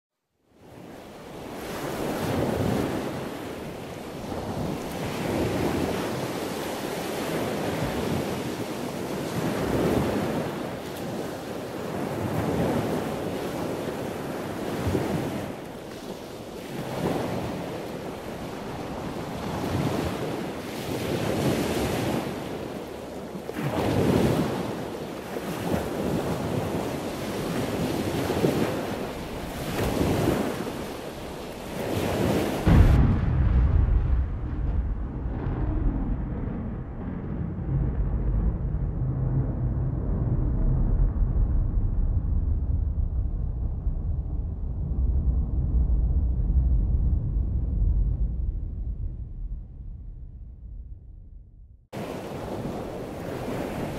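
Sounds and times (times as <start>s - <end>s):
waves washing onto beach: 0.6s - 35.6s, 52.0s - 53.9s
wind buffeting microphone: 0.6s - 53.9s.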